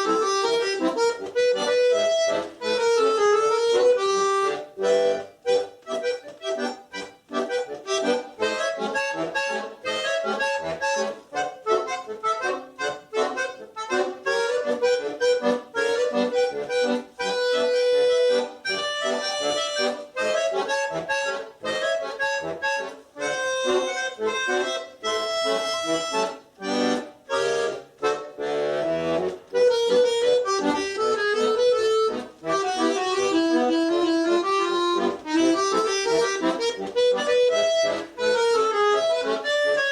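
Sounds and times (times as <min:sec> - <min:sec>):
accordion playing lively piece: 0:00.0 - 0:39.9.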